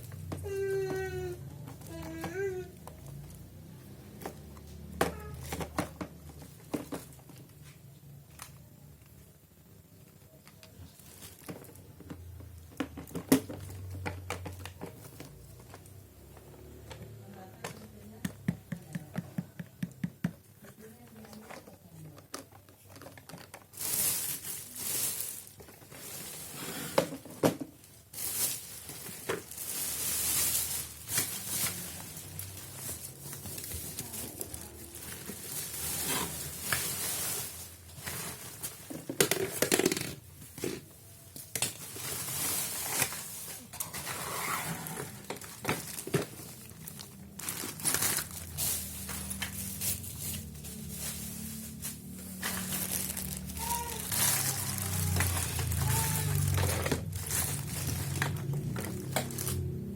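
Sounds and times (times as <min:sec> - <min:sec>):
plastic packaging crinkling: 0:20.8 - 0:27.1, 0:27.8 - 0:59.9.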